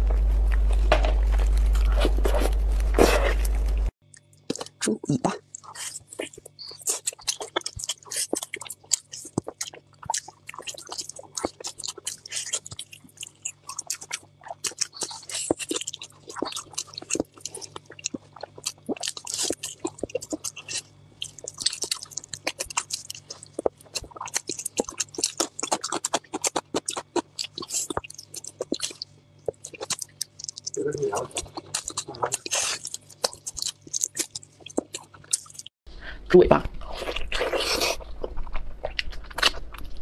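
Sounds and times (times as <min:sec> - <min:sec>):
faint low hum: 0:00.0 - 0:40.0
mouth clicks and smacks chewing: 0:05.4 - 0:35.7.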